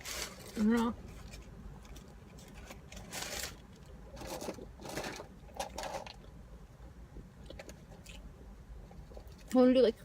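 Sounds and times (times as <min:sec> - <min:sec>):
rustling: 0:00.0 - 0:06.2.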